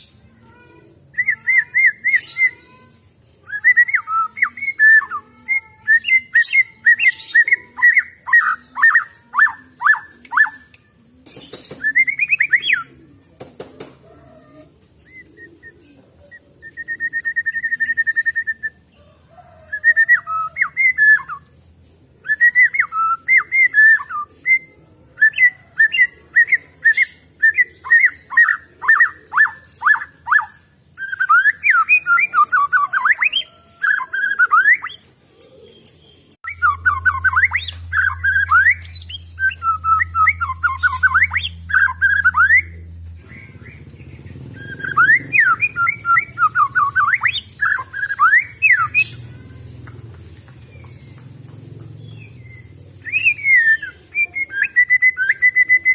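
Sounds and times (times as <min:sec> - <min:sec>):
bird singing whistled notes: 0:11.7 - 0:12.9, 0:16.3 - 0:18.8, 0:22.2 - 0:43.6, 0:44.5 - 0:49.2, 0:52.1 - 0:55.9.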